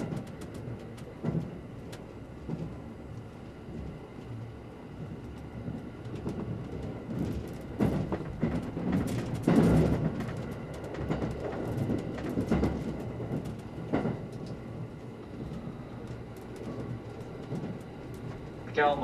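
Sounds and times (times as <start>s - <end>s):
train wheels rumbling on rail: 0.0s - 19.0s
wheels clacking over rail joints: 5.8s - 19.0s.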